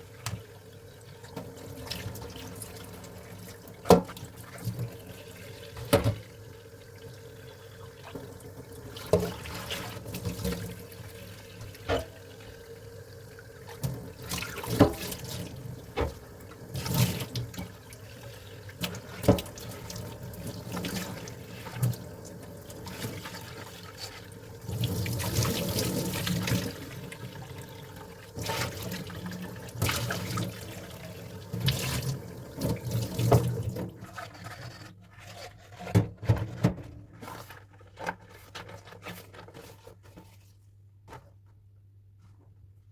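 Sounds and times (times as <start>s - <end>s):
tap water running into sink: 0.0s - 34.1s.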